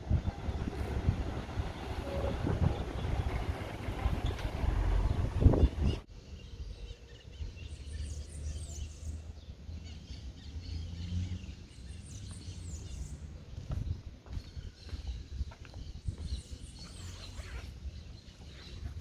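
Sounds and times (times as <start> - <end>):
street ambience rumble: 0.0 - 19.0
small birds chirping: 5.1 - 19.0.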